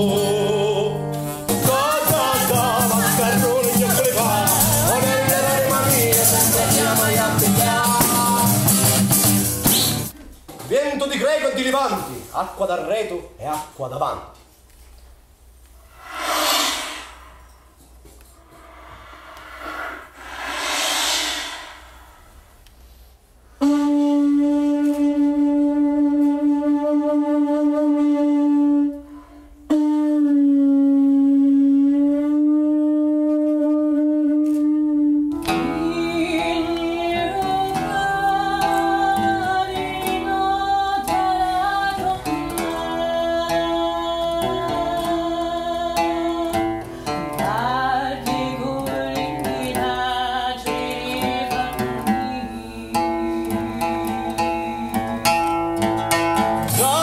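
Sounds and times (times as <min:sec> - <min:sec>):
folk band with plucked strings: 0:00.1 - 0:10.1
breathy noise: 0:15.8 - 0:23.2
wind instrument long notes: 0:23.6 - 0:35.3.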